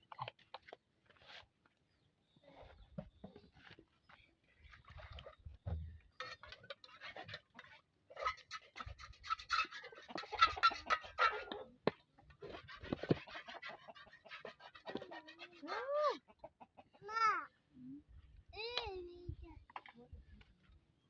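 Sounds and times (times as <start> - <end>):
chickens clucking: 8.2 - 11.7, 12.3 - 17.3.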